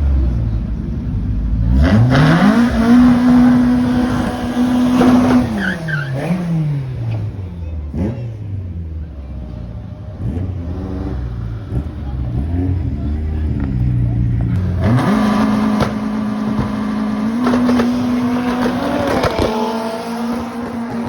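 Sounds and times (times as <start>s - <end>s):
drag car engine revving: 0.0s - 21.0s.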